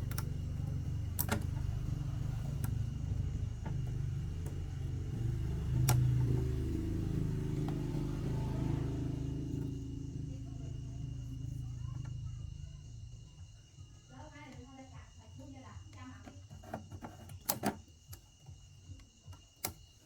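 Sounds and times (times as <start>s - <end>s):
sharp clicks: 0.0s - 2.9s
engine humming: 0.0s - 13.8s.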